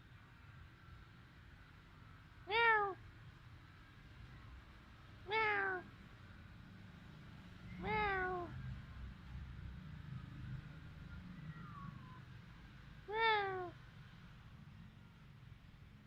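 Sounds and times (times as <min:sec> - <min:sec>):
cat meowing: 0:02.5 - 0:03.0, 0:05.3 - 0:05.9, 0:07.8 - 0:08.6, 0:13.1 - 0:13.8.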